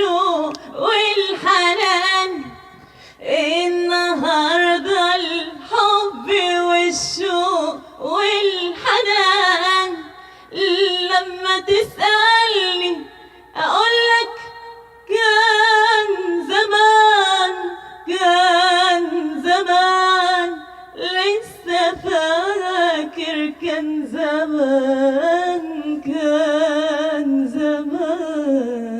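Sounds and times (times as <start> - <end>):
woman singing with vibrato: 0.0 - 28.9.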